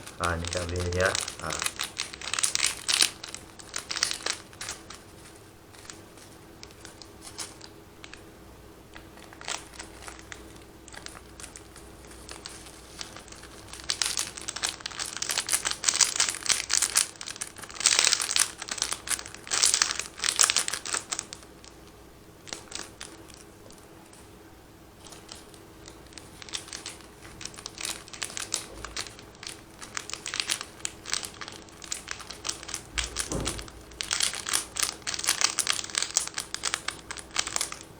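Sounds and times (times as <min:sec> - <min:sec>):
plastic sachets crinkling: 0:00.0 - 0:08.3, 0:08.9 - 0:21.8, 0:22.4 - 0:24.3, 0:25.0 - 0:37.9.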